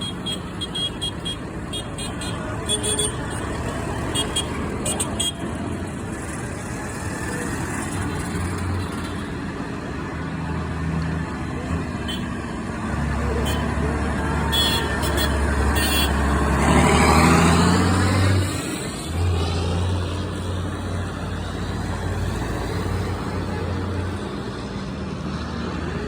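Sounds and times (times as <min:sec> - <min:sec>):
tractor engines rumbling: 0:00.0 - 0:26.0.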